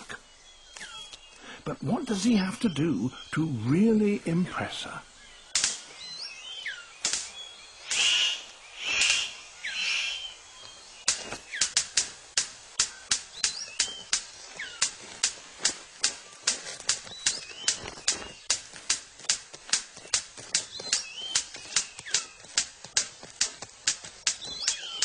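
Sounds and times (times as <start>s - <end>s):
sharp bird clicks: 0.6s - 1.6s, 5.3s - 25.0s
short noisy bird calls: 4.8s - 18.6s, 19.8s - 25.0s
faint whistled bird calls: 5.3s - 11.8s, 24.3s - 25.0s.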